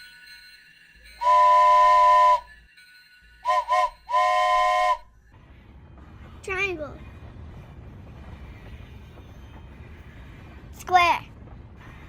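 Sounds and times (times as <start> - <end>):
steam train whistle: 1.2 - 2.5, 3.4 - 5.1.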